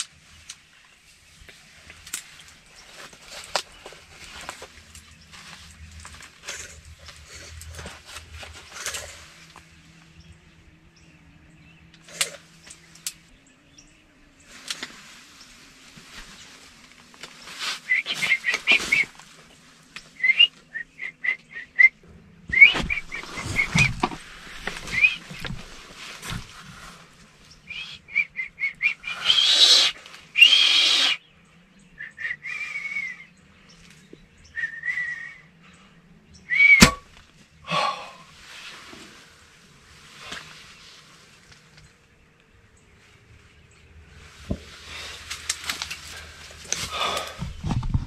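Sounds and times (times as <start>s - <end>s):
small birds chirping: 0.0s - 47.7s
loud rustle: 14.4s - 20.4s, 22.5s - 27.5s.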